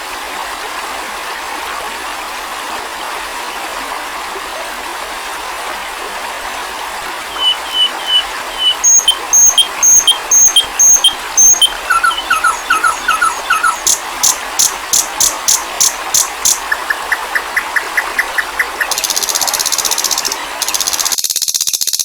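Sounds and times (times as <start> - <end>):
songbird singing: 7.2 - 21.2.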